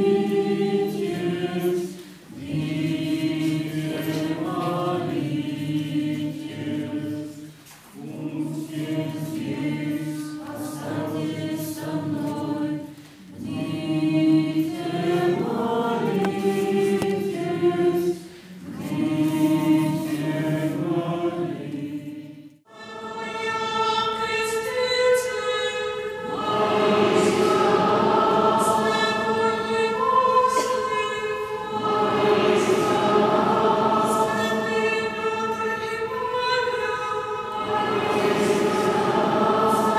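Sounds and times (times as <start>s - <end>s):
church choir singing: 0.0s - 39.9s
singers breathing: 1.9s - 2.3s, 18.2s - 18.7s.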